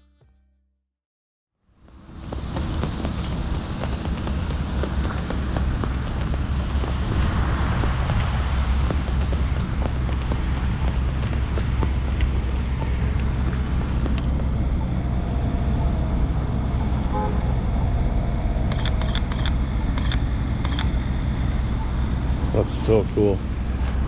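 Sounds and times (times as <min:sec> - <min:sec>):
motor vehicle rumbling: 0:01.6 - 0:24.0
sharp clicks: 0:18.7 - 0:20.9.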